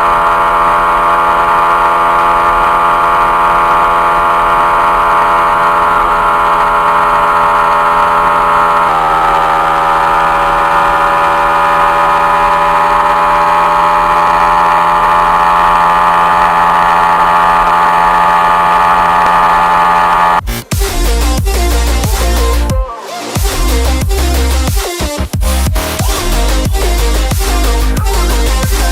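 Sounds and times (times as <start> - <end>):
motorcycle engine running: 0.0 - 22.8, 23.4 - 28.9.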